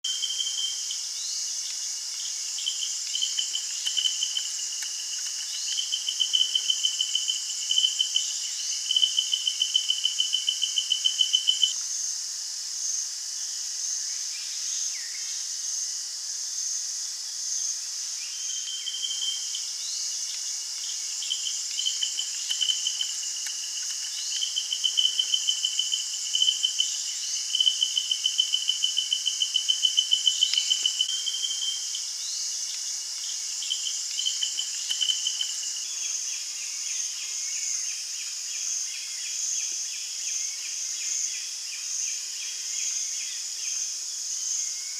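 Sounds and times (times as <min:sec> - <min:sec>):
insect pulsing trill: 0:00.1 - 0:11.8, 0:18.2 - 0:39.0.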